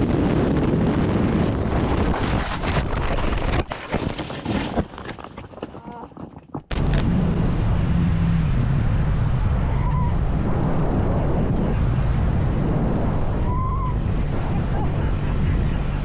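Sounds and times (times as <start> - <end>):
wind and road noise: 0.0 - 16.0
motorcycle engine hum: 7.2 - 16.0.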